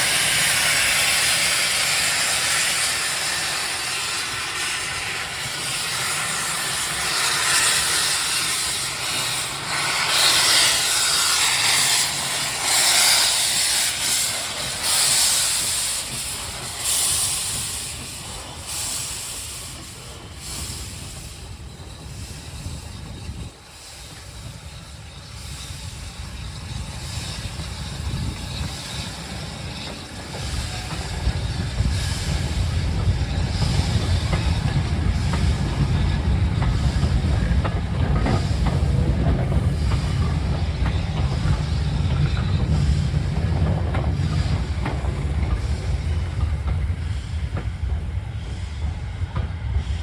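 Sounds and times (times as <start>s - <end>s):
steam locomotive hissing steam: 0.0s - 50.0s.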